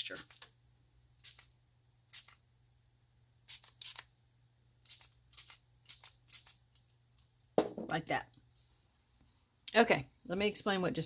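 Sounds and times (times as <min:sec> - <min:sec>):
spray bottle spritzes: 0:01.2 - 0:01.5, 0:02.1 - 0:02.4, 0:03.5 - 0:04.1, 0:04.8 - 0:06.6.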